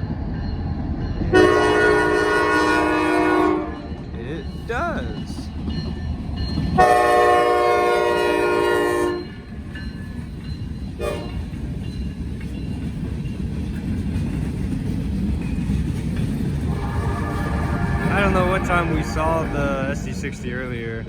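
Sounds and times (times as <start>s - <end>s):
freight train rumbling past: 0.0s - 21.0s
locomotive horn blowing: 1.3s - 3.9s, 6.8s - 9.3s, 11.0s - 11.4s, 16.7s - 20.0s.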